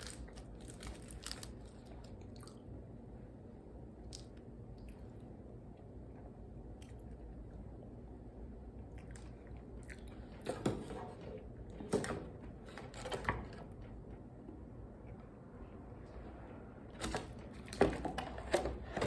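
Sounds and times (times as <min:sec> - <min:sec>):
person chewing food: 0:08.8 - 0:10.4.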